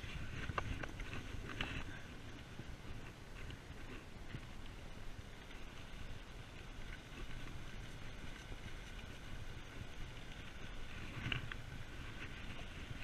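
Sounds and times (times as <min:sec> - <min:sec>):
wind on microphone: 0:00.0 - 0:05.3
bike rolling on paved road: 0:00.0 - 0:13.0.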